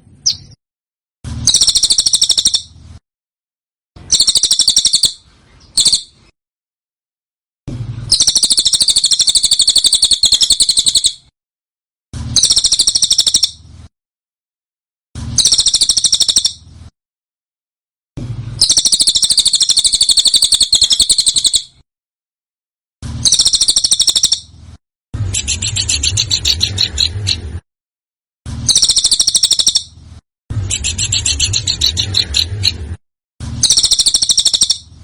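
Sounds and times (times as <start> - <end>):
songbird rolling trill: 1.5 - 2.6, 4.1 - 5.1, 8.1 - 11.2, 12.4 - 13.5, 18.6 - 21.7, 23.3 - 24.4, 28.7 - 29.8, 30.7 - 32.8, 33.6 - 34.8.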